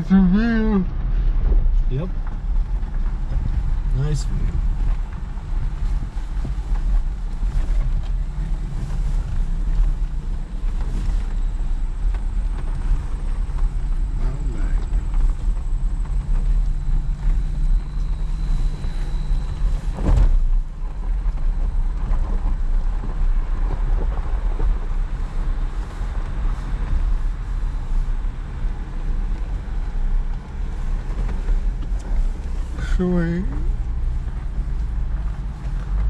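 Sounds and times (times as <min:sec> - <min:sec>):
off-road vehicle rumble: 0:00.0 - 0:36.0.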